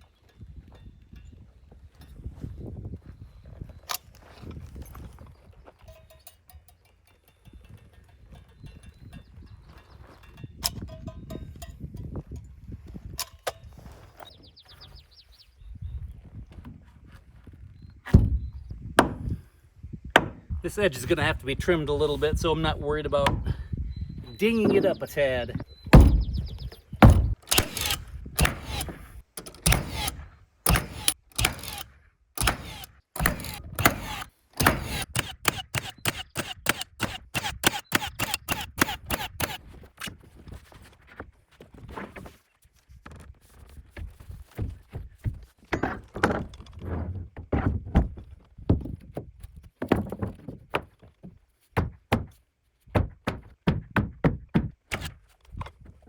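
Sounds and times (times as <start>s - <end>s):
hammer blows on wood: 25.9s - 28.8s.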